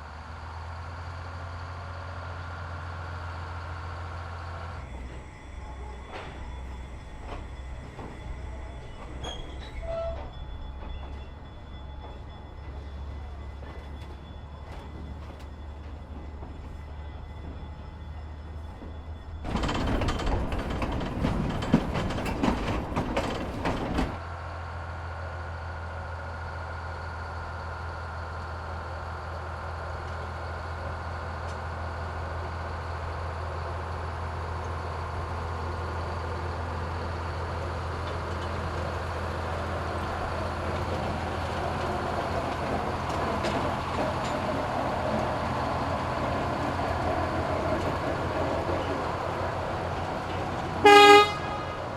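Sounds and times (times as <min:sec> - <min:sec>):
train rumbling on rails: 0:00.0 - 0:51.9
rail clicks: 0:04.8 - 0:24.2, 0:31.3 - 0:51.9
rattling noise with sharp clicks: 0:18.8 - 0:24.2.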